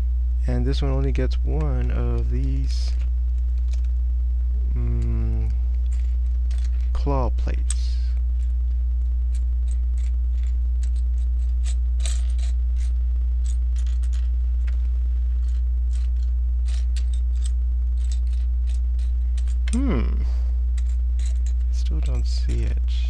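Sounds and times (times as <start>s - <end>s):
low electrical hum: 0.0s - 23.0s
plastic toy bricks clattering: 11.6s - 14.8s.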